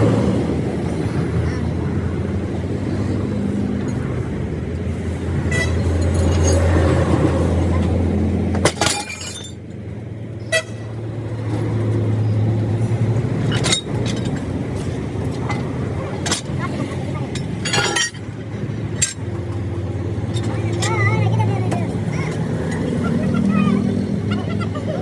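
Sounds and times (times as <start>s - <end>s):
road traffic noise: 0.0s - 25.0s
sharp metallic clanks: 8.5s - 9.6s, 13.4s - 22.9s
vehicle engine running: 11.1s - 25.0s.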